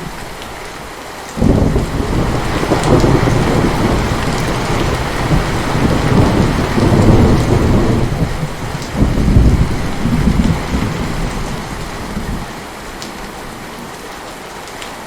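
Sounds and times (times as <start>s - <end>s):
heavy rain: 0.0s - 15.0s
rolling thunder: 1.4s - 12.5s.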